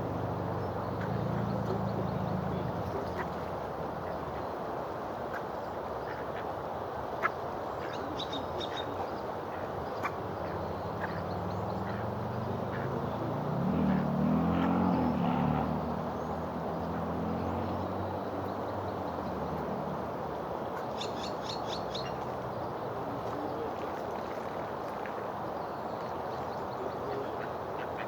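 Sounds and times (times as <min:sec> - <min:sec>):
outdoor background noise: 0:00.0 - 0:28.0
bird chirping: 0:20.8 - 0:22.2.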